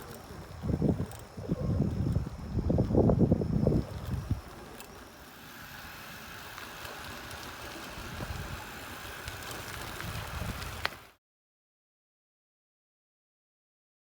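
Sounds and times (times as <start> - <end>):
wind and road noise: 0.0 - 11.2.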